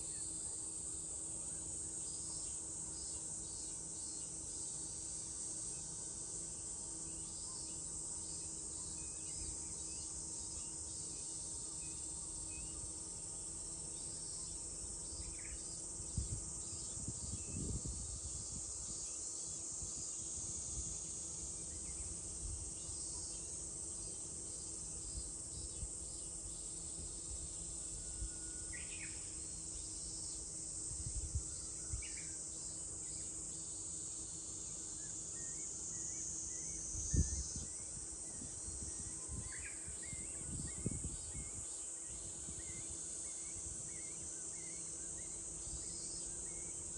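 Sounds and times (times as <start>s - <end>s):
cicadas chorus: 0.0s - 46.9s.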